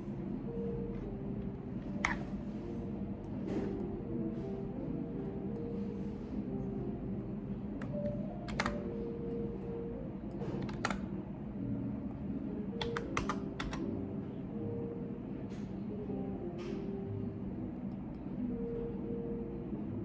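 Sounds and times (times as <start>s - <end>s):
keyboard keystrokes: 1.9s - 2.3s, 7.8s - 9.0s, 10.3s - 11.1s, 12.8s - 13.9s.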